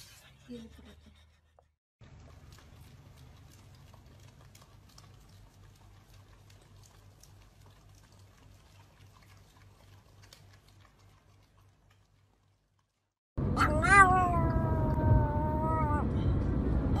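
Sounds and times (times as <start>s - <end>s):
dogs licking wet smacks: 2.0s - 13.0s.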